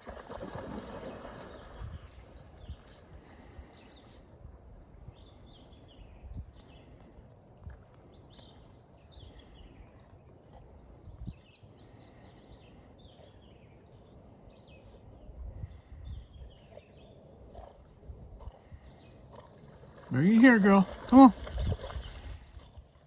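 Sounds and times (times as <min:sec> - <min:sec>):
birds chirping: 0:08.1 - 0:22.8.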